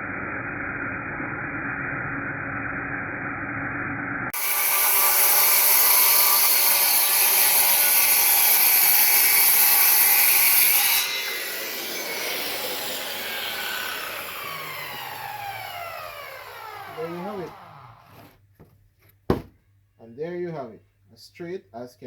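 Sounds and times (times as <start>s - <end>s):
saw blade winding down whine: 0.0s - 18.3s
circular saw cutting board: 4.3s - 18.7s.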